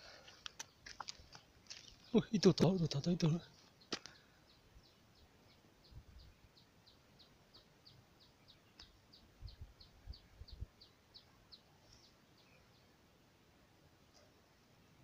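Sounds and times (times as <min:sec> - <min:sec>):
faint bird chirps: 0:01.4 - 0:13.0.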